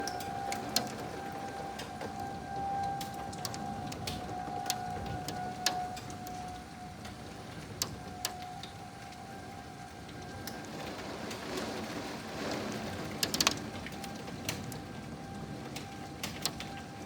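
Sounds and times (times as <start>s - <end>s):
warning siren held tone: 0.0s - 10.9s
steady rain: 0.0s - 17.0s.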